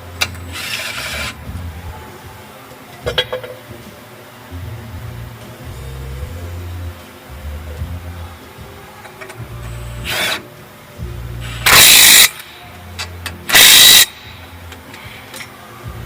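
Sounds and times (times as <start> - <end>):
cordless power tool bursts: 11.6 - 12.4, 13.5 - 14.1.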